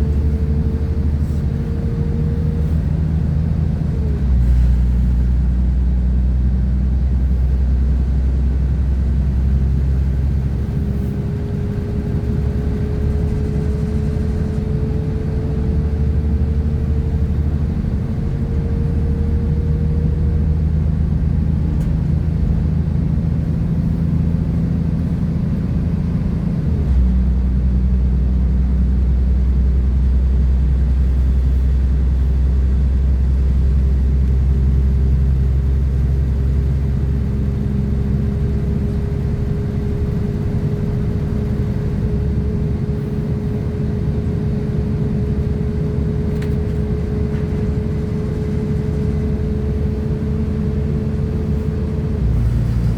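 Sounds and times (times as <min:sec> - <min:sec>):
diesel engine rumble: 0:00.0 - 0:52.9
train running noise: 0:09.3 - 0:20.0, 0:35.9 - 0:52.9.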